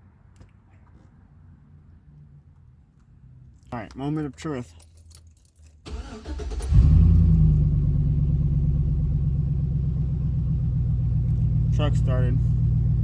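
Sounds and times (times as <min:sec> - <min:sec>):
engine cranking on starter: 0:05.8 - 0:07.8
engine revving and idling: 0:05.9 - 0:13.0.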